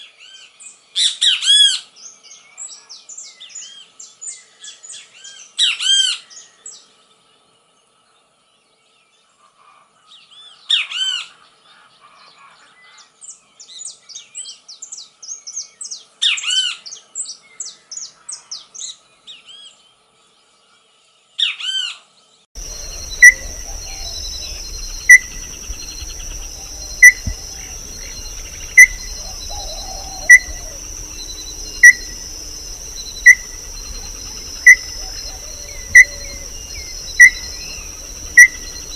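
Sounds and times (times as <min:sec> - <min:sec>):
songbird singing: 0:12.6 - 0:38.9
high insect drone: 0:22.6 - 0:38.9.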